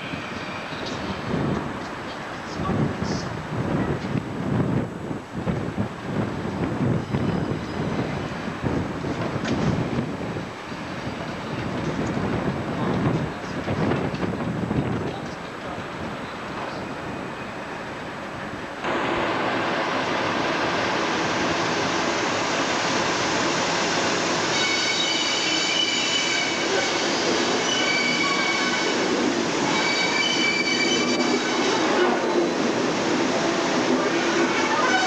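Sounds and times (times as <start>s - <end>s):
train running on rails: 0.0s - 35.0s
metallic wheel squeal: 24.5s - 27.0s, 27.6s - 28.9s, 29.7s - 31.6s.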